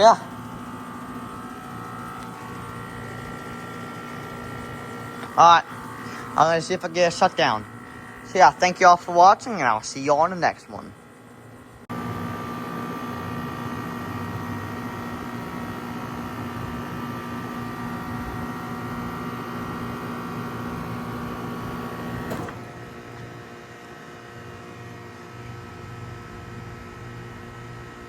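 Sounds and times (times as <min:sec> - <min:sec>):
compressor shutoff click: 0:00.0 - 0:09.3
heat pump humming: 0:00.0 - 0:28.0.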